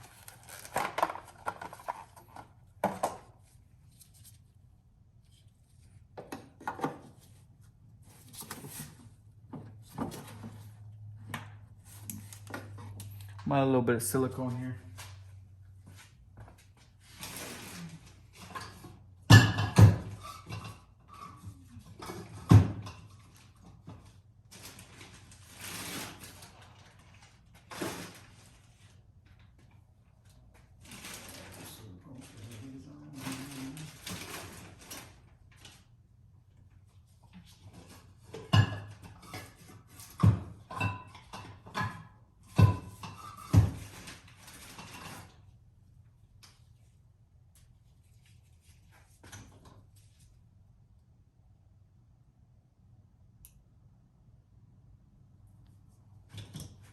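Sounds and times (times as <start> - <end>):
shuffling and handling noise: 0.0 - 6.2, 23.2 - 36.1.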